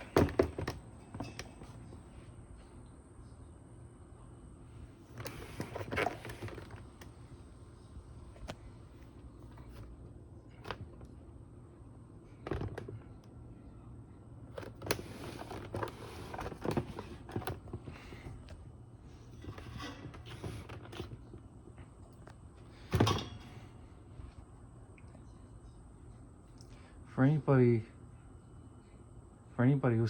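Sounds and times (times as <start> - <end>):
objects knocking and rustling: 0.0 - 2.0, 5.1 - 7.1, 12.4 - 13.2, 14.6 - 18.6, 19.2 - 23.8
faint low hum: 0.0 - 30.0.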